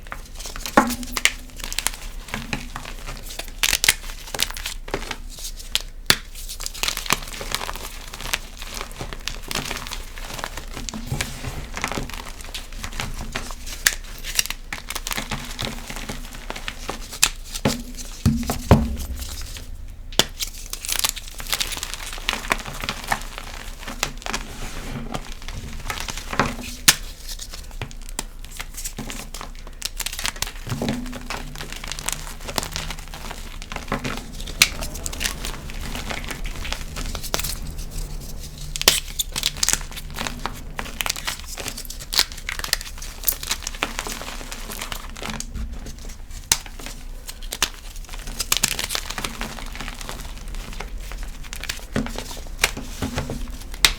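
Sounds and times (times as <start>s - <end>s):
low hum: 18.3s - 22.8s, 30.3s - 53.9s.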